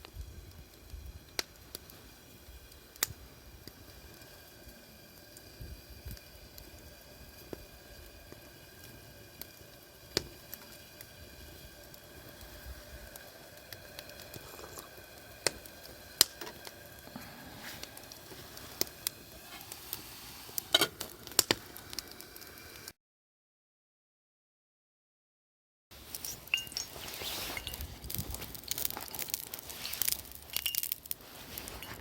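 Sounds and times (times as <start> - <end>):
campfire crackling and popping: 0.0 - 22.9, 26.0 - 32.0.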